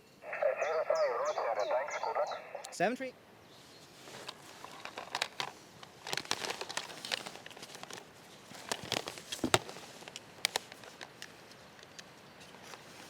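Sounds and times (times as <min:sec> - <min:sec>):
gear rustling and crinkling: 0:03.8 - 0:11.9
small clicks and knocks: 0:04.2 - 0:08.0.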